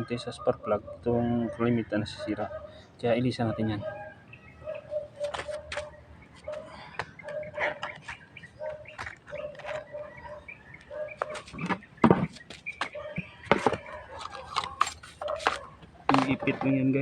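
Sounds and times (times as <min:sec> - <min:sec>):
metal tools clicking and knocking: 0:13.5 - 0:16.8.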